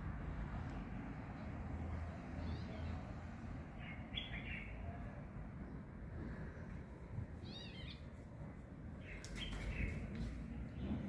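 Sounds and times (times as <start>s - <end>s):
small birds chirping: 3.7s - 4.9s, 7.3s - 8.2s, 9.0s - 11.0s.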